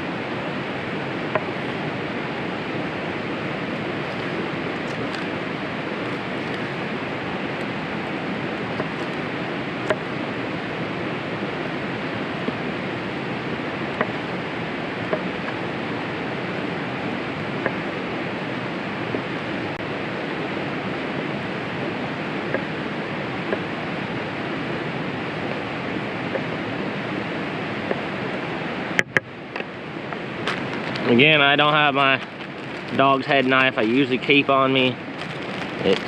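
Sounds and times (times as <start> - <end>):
campfire crackling and popping: 1.2 - 10.2, 29.0 - 36.0.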